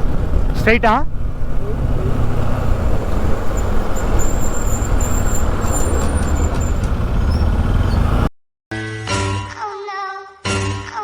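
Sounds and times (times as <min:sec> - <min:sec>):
motorcycle engine: 0:00.0 - 0:08.3
road noise: 0:00.0 - 0:08.3.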